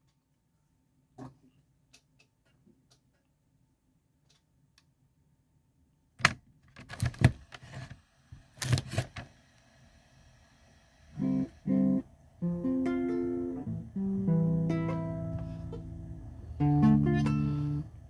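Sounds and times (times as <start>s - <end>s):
acoustic guitar playing: 11.2s - 18.0s.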